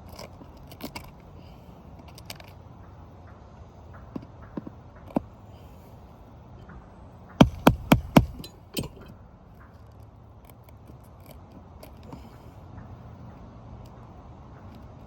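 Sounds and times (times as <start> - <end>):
sharp metal taps: 7.4 - 9.2.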